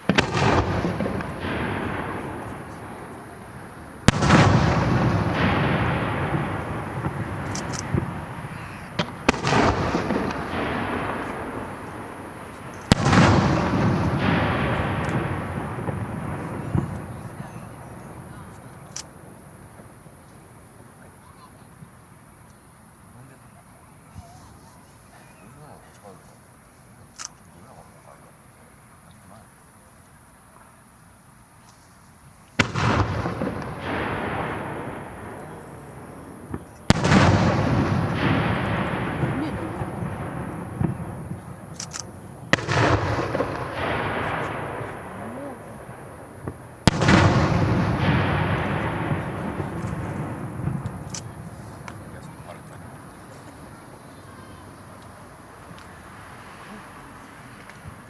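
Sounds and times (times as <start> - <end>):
fireworks bursting with echoing rumble: 0.0 - 22.3, 32.4 - 58.0.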